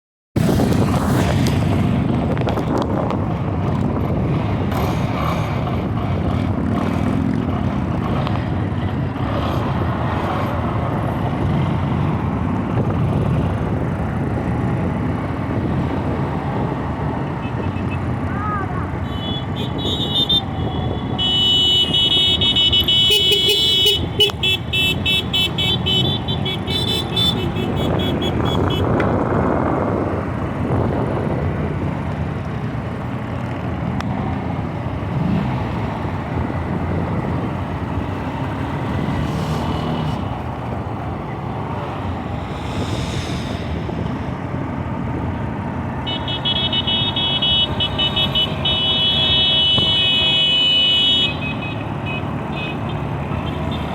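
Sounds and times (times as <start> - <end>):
racing vehicle engines: 0.4 - 53.9.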